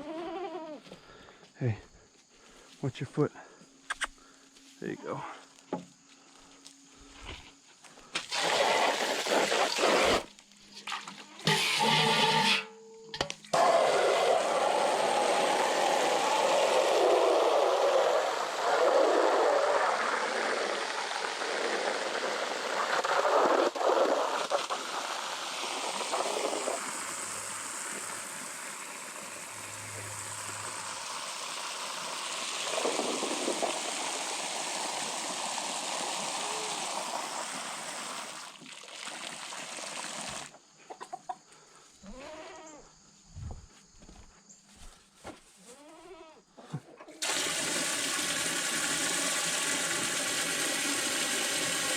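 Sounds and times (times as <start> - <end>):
water running into trough: 8.2 - 12.7, 13.5 - 40.6, 47.2 - 51.9.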